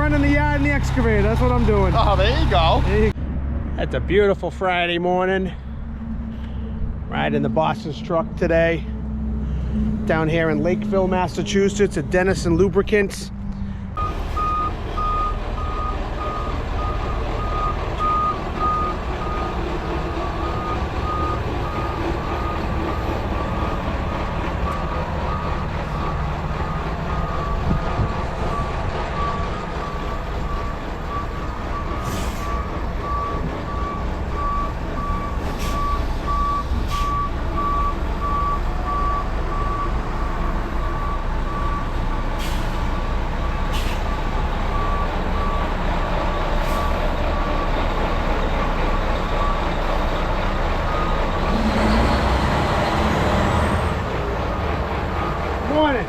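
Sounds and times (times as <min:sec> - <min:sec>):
truck engine running: 0:00.0 - 0:56.0
backup alarm beeping: 0:14.0 - 0:19.6.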